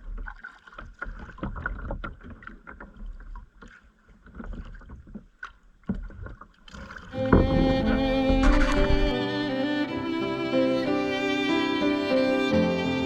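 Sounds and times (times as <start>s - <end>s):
paddle splashes and drips: 0.0s - 9.2s.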